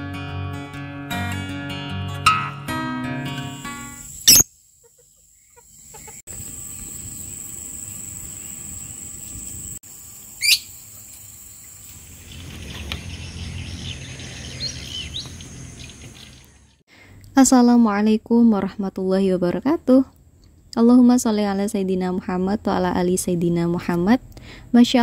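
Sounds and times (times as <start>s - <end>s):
acoustic guitar music: 0.0s - 4.0s
bird chirping: 4.0s - 9.6s, 10.2s - 10.8s, 11.5s - 16.8s.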